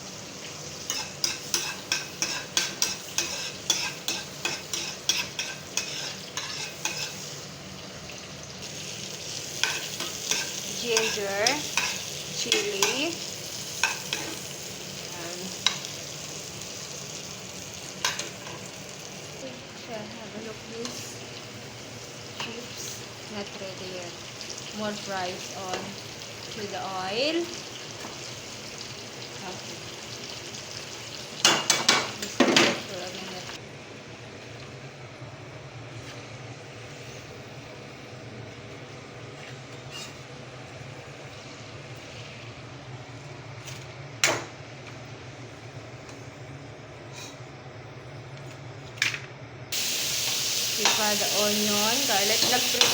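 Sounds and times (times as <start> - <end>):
chips sizzling in hot oil: 0.0 - 33.6, 49.7 - 52.9.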